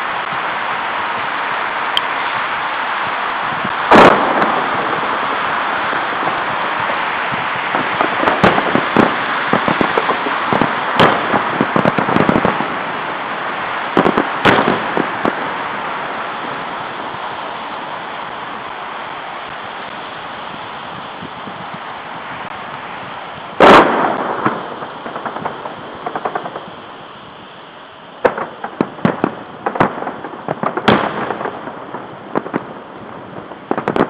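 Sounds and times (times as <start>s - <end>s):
fireworks bangs and crackles: 0.0s - 34.0s
steady hiss: 0.0s - 34.0s.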